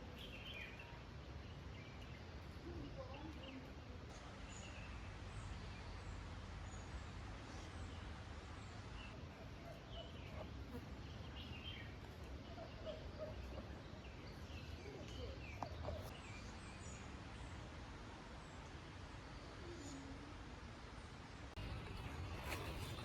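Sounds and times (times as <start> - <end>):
birds chirping: 0.0 - 17.7.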